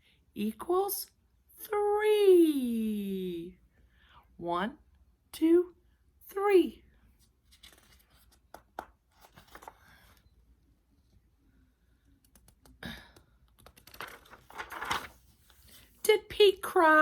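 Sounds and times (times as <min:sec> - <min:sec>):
small clicks and taps: 0:12.2 - 0:14.0.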